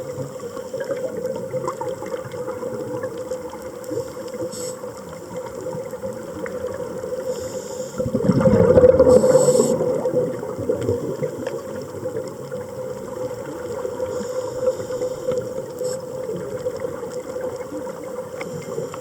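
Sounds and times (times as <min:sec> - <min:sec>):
gurgling water wash: 0:00.0 - 0:19.0
low underwater hum: 0:00.0 - 0:19.0
faint clicks: 0:08.8 - 0:19.0.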